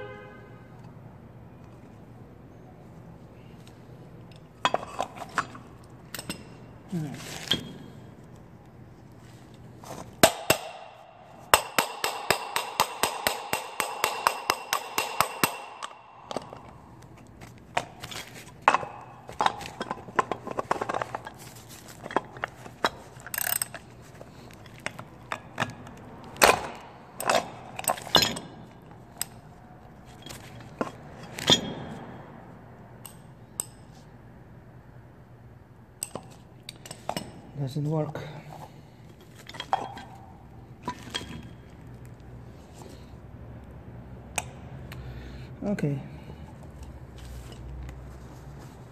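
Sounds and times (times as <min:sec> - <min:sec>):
metal tools clinking on plastic housing: 0:04.3 - 0:06.6, 0:17.8 - 0:29.4, 0:39.3 - 0:41.6.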